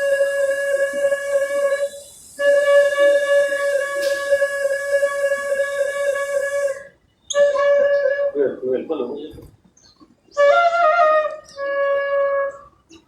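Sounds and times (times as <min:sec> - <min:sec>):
flute playing long note: 0:00.0 - 0:08.8, 0:10.3 - 0:12.8
breath hiss: 0:01.2 - 0:06.9.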